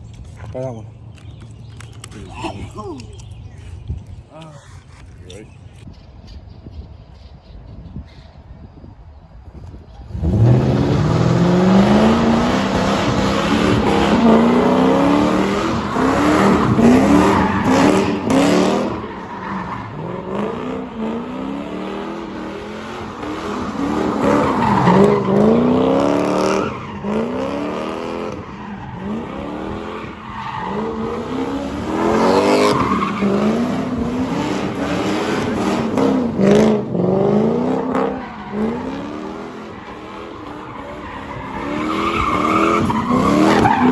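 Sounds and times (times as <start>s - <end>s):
car engine revving hard: 10.1s - 19.0s.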